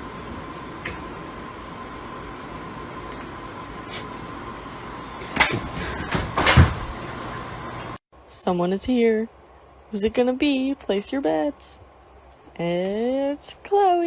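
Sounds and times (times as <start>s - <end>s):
faint constant tone: 8.2s - 14.0s.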